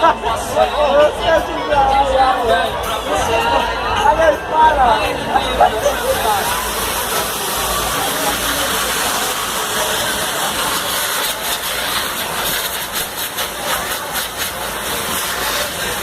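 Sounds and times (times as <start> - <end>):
bonfire hissing: 5.5 - 16.0
fire crackling: 5.8 - 16.0.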